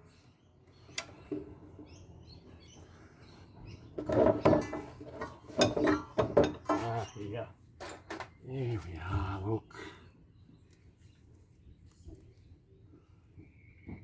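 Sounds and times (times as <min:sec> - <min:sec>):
metal tools clinking: 0:04.6 - 0:07.2
faint bird chirps: 0:09.3 - 0:14.0.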